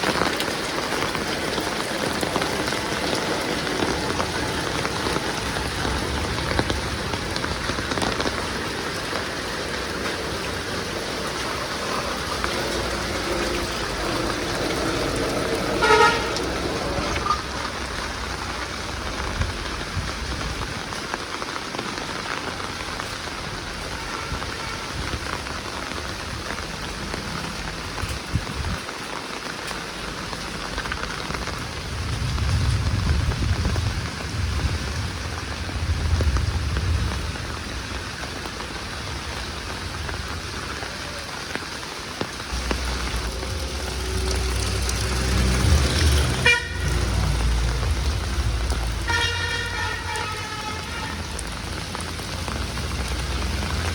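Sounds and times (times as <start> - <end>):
heavy rain pattering: 0.0 - 53.9
horn toot: 13.2 - 17.5, 43.3 - 47.7, 49.0 - 51.5
low rumble: 42.5 - 49.0.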